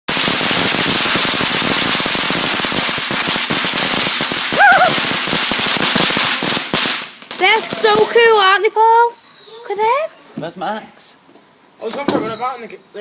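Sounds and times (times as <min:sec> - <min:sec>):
fireworks crackling: 0:00.1 - 0:09.1
person exclaiming: 0:04.5 - 0:05.0.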